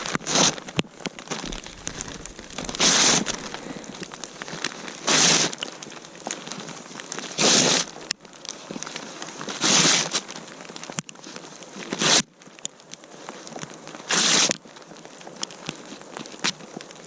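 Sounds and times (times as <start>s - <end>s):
faint crackles and clicks: 0.0s - 17.0s
paper ripping: 1.3s - 5.6s.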